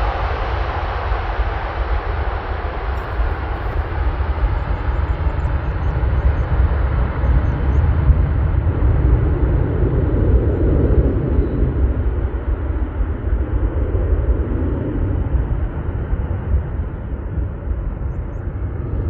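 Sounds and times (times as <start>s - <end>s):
jet airliner passing: 0.0s - 19.0s.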